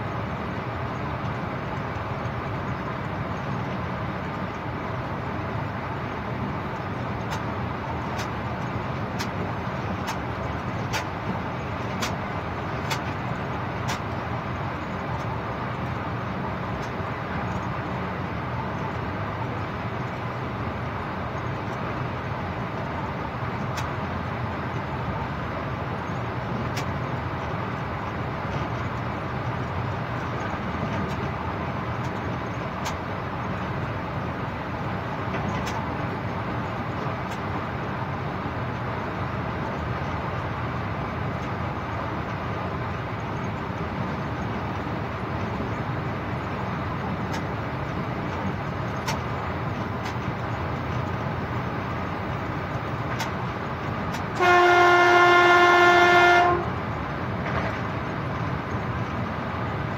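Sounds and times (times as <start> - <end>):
train running noise: 0.0 - 59.9
locomotive horn blast: 54.3 - 56.8.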